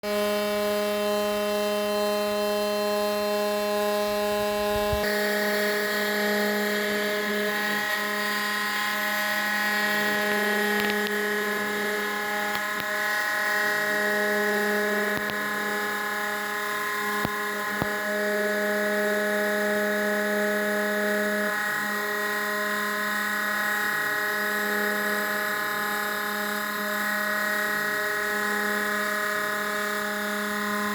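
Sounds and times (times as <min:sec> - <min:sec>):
cnc spindle whine: 0:00.0 - 0:30.9.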